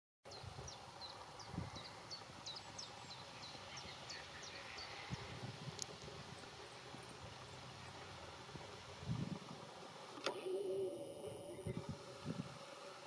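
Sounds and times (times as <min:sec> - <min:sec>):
faint outdoor hiss: 0:00.3 - 0:13.0
bird calling: 0:00.6 - 0:05.2, 0:10.1 - 0:12.9.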